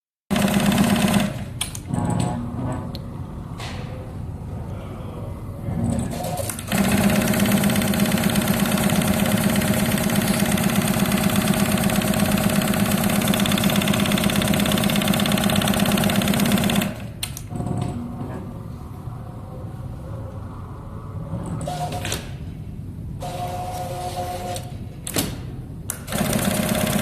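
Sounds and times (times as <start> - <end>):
sewing machine stitching: 6.0 - 17.0, 26.1 - 27.0.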